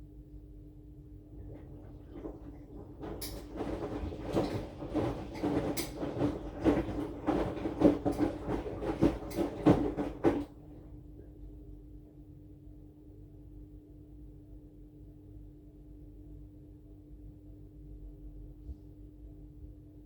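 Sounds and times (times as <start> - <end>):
laundry tumbling with thuds: 1.3 - 11.0
washing machine drum turning: 1.3 - 11.1.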